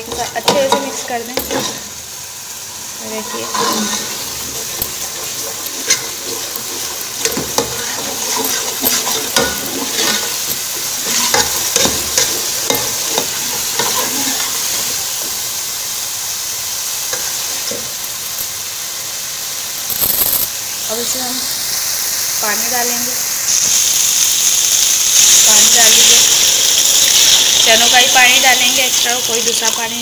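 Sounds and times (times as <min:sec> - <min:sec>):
steel spoon scraping a pot: 0:00.0 - 0:01.9, 0:03.1 - 0:15.0
masala sizzling in oil: 0:00.0 - 0:30.0.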